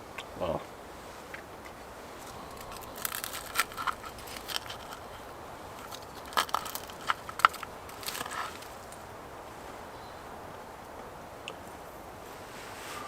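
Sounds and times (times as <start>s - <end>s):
crunchy food being chewed: 2.2s - 9.1s.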